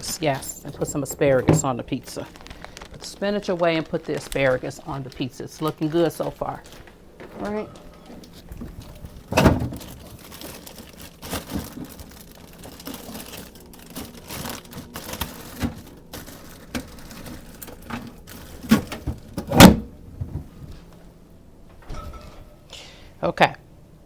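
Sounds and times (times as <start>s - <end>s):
rustling: 0.0s - 19.2s.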